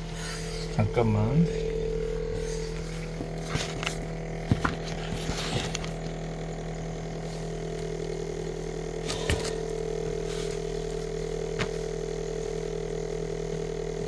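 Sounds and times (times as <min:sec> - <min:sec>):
buzzing rattle: 0:00.0 - 0:14.0
refrigerator compressor hum: 0:00.0 - 0:14.0
sharp clicks and handling rustles: 0:00.1 - 0:06.3, 0:09.0 - 0:12.0.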